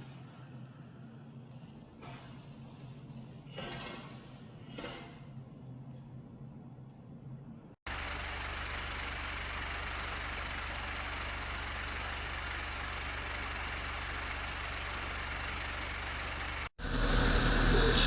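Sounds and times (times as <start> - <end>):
fan blades rushing air: 7.9 - 18.0
fan motor hum: 7.9 - 18.0.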